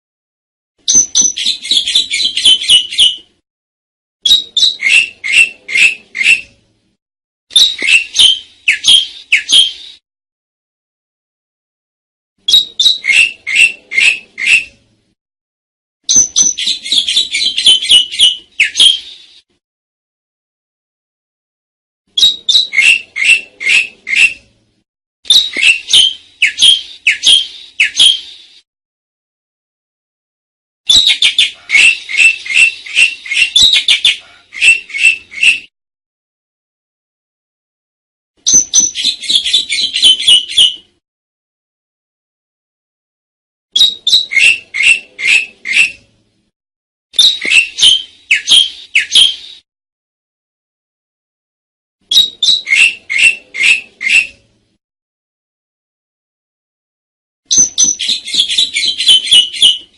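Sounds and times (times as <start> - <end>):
starling harsh calls: 12.5 - 14.8, 30.9 - 35.6, 43.8 - 46.0, 52.1 - 54.3.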